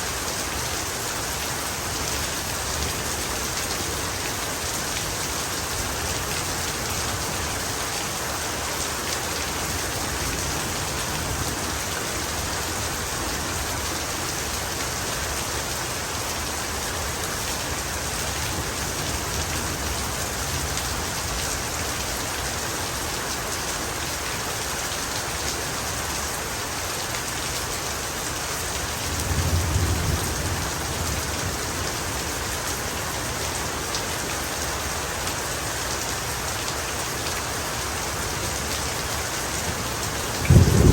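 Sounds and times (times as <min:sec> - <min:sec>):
heavy rain falling: 0:00.0 - 0:40.9
low rumble of thunder: 0:29.0 - 0:32.4, 0:39.6 - 0:40.9.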